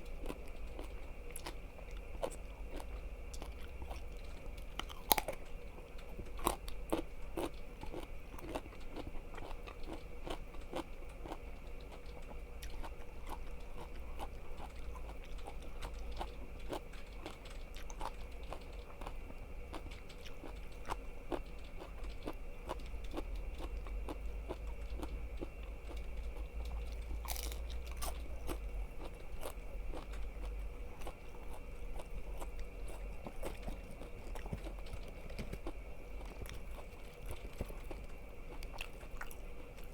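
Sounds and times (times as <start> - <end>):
chewing crunchy food: 0.0 - 39.9
low electrical hum: 0.0 - 39.9.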